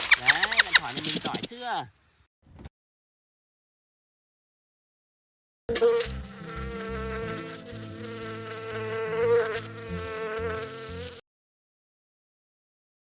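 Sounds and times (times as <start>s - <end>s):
flying insect buzzing: 5.7s - 11.2s.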